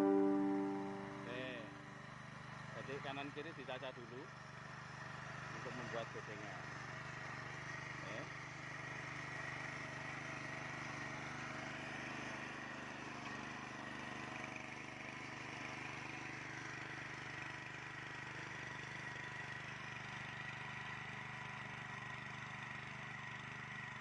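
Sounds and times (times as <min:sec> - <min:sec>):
small engine running: 0:04.3 - 0:14.8, 0:15.6 - 0:24.0.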